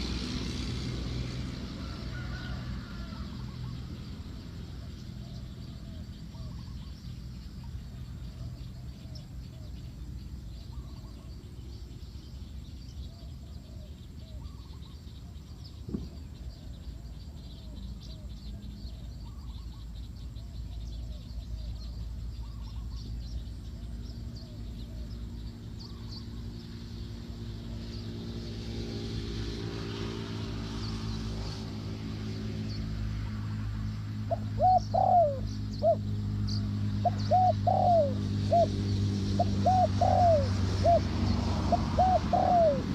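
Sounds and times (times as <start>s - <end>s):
small birds chirping: 0.0s - 42.9s
dove cooing: 1.8s - 7.0s, 34.2s - 36.1s, 37.0s - 42.9s.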